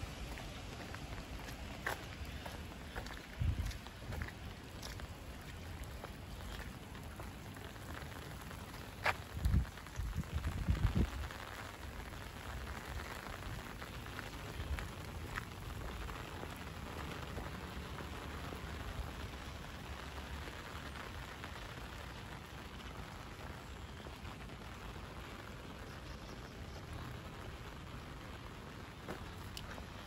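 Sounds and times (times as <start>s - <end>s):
light rain on paving: 0.0s - 30.0s
drip ticks: 29.1s - 29.8s.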